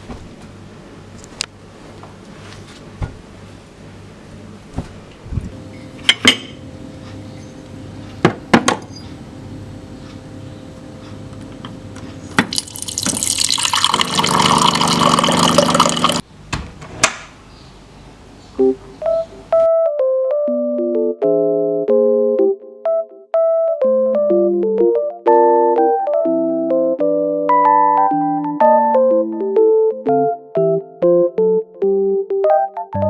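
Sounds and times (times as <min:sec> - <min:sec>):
water pouring into a container: 0:12.4 - 0:16.2.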